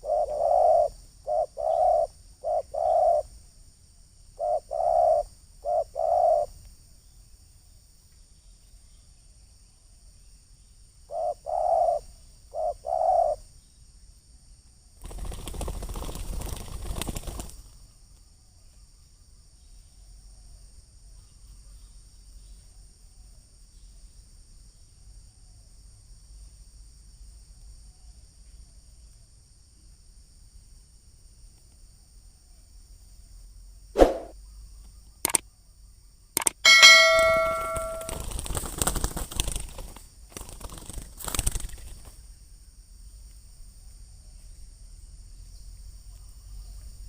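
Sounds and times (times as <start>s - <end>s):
dove cooing: 0.0s - 3.3s, 4.4s - 6.5s, 11.1s - 13.4s.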